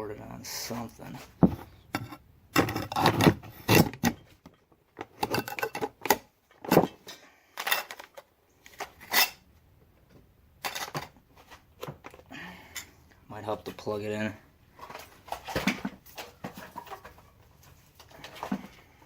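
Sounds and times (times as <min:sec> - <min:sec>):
metal tools clinking and knocking: 0:00.7 - 0:08.2, 0:10.6 - 0:11.2, 0:14.8 - 0:18.8.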